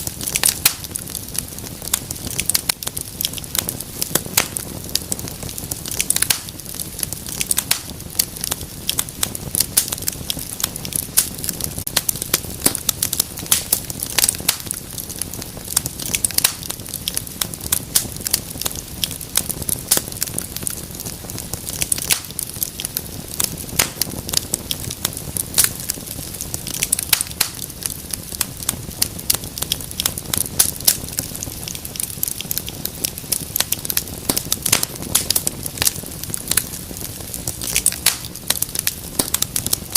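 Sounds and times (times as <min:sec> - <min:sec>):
low rumble of flame: 0:00.0 - 0:39.9
wood fire crackling and popping: 0:00.0 - 0:39.9.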